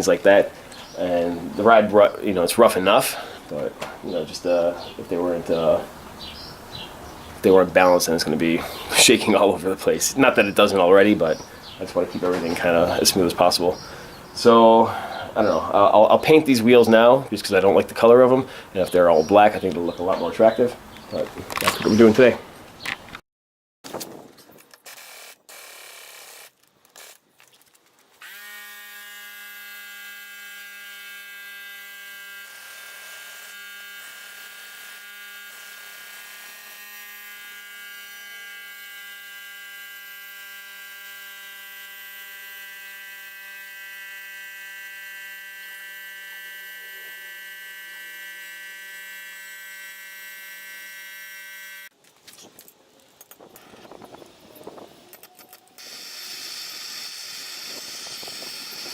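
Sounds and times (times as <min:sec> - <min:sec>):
small electric motor humming: 0:24.9 - 0:27.2, 0:28.2 - 0:51.9, 0:55.7 - 0:58.9.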